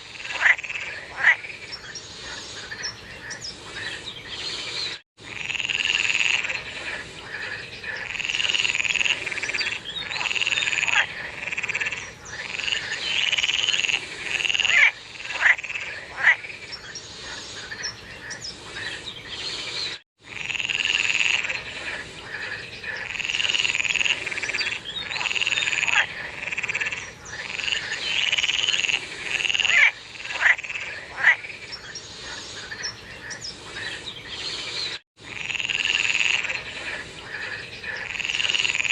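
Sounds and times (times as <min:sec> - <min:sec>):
frog chorus: 0:00.0 - 0:19.6, 0:20.2 - 0:34.6, 0:35.2 - 0:38.9
sharp downward-sweeping frog calls: 0:00.1 - 0:01.9, 0:05.2 - 0:16.9, 0:20.3 - 0:31.9, 0:35.3 - 0:38.9.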